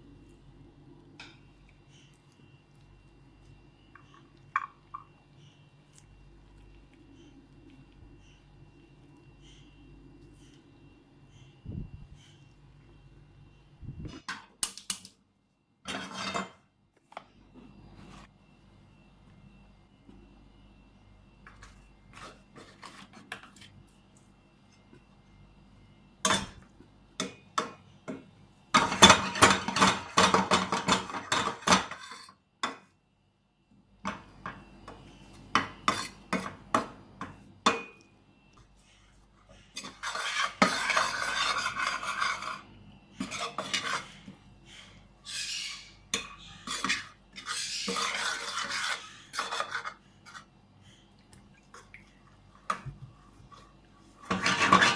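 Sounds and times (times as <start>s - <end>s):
utensils clinking on cookware: 15.8s - 16.6s, 27.2s - 32.9s, 35.5s - 38.0s, 39.7s - 42.6s, 46.1s - 50.4s, 54.2s - 54.9s
scraping and stirring: 15.9s - 16.6s, 21.4s - 25.2s, 26.2s - 32.8s, 34.1s - 54.9s.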